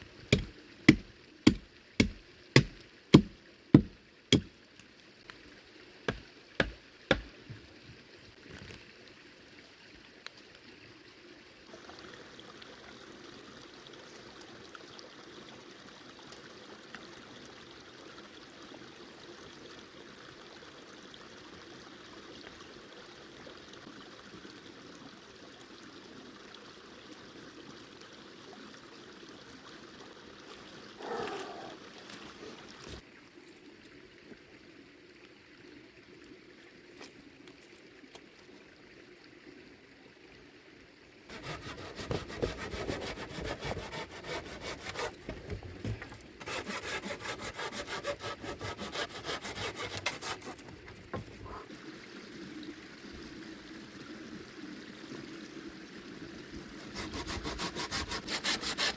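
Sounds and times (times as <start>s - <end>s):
trickling rushing water: 0.0s - 58.9s
sharp knocks: 0.3s - 4.5s, 6.6s - 7.3s.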